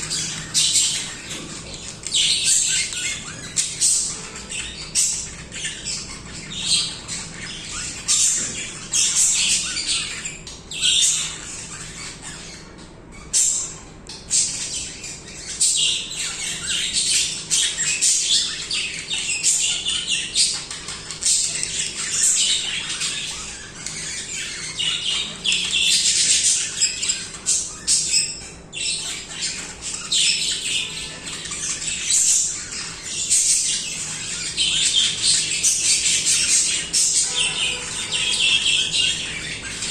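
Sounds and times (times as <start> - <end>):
budgerigars chattering: 0.0 - 39.9
budgerigar squawks: 34.5 - 39.9.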